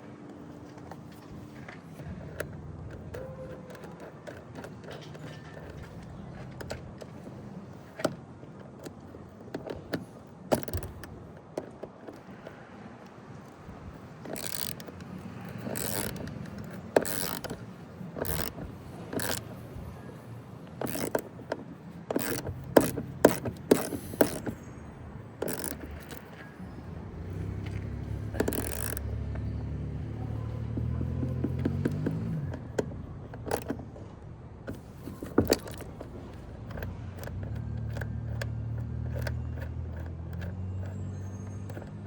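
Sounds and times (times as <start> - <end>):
tool clicks and knocks: 0.2 - 42.0
ratchet bursts: 13.4 - 33.9, 34.7 - 42.0.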